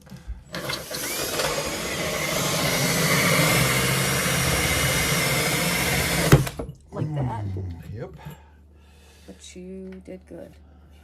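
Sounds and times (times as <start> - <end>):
power drill boring through tile: 0.5 - 6.6.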